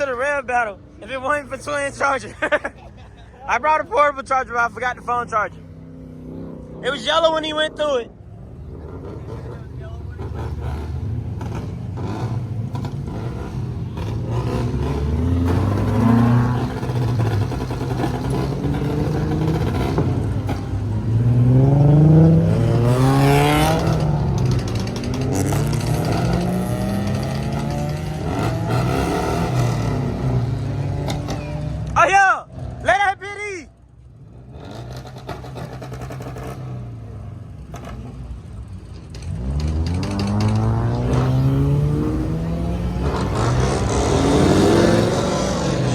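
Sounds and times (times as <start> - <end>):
car engine accelerating hard: 8.5 - 32.0, 39.1 - 45.9.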